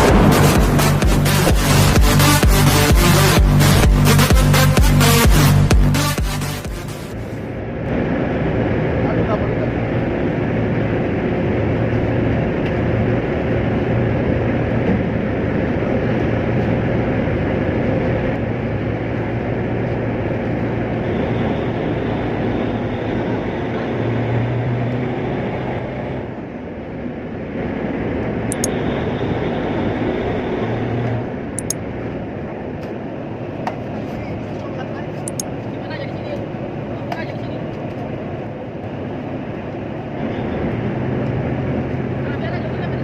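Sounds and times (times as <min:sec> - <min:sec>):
boat machinery humming: 0:00.0 - 0:26.8.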